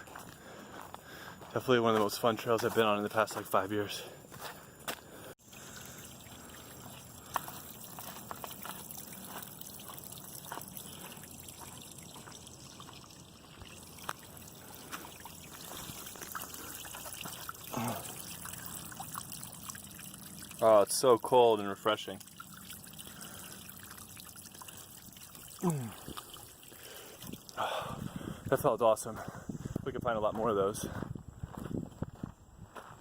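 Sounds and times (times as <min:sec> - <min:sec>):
small water splashes: 0:05.4 - 0:28.2
waterfall trickling over rock: 0:05.4 - 0:28.6.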